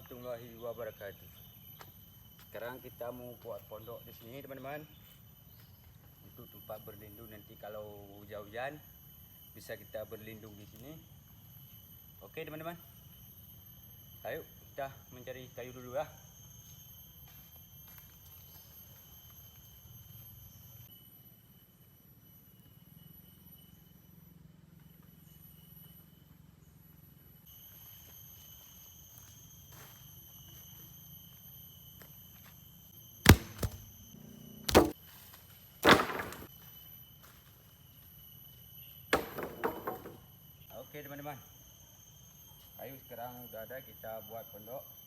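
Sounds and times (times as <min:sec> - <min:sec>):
forest insects droning: 0:00.0 - 0:45.0
wood cracking: 0:33.2 - 0:33.8, 0:35.8 - 0:36.4.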